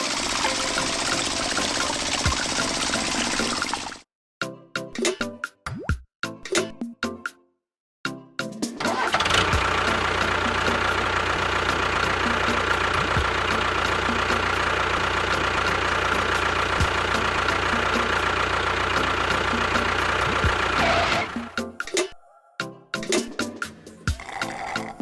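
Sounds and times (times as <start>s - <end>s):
engine running: 0.0s - 4.0s, 8.8s - 21.6s.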